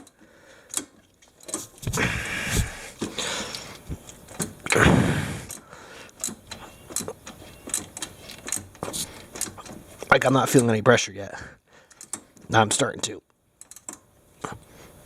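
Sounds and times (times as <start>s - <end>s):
wrench scraping and rattling on metal: 0.0s - 2.0s, 6.2s - 10.8s
light wrench clicks: 13.6s - 14.0s.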